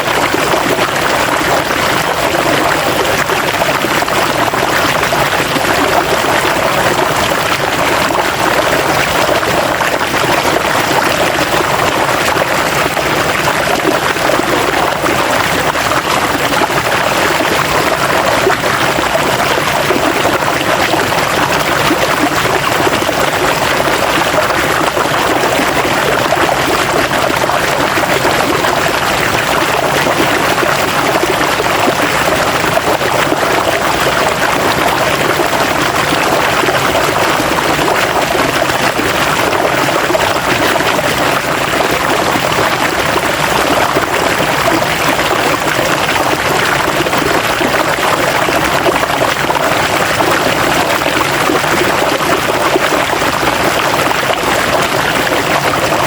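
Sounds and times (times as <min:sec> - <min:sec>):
river water flowing over rocks: 0:00.0 - 0:56.0.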